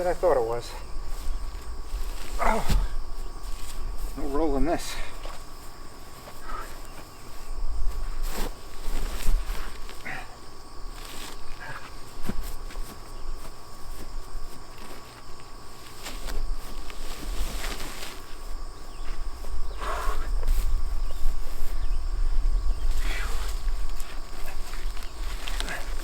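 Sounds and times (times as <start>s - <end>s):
person grunting: 2.4s - 2.8s.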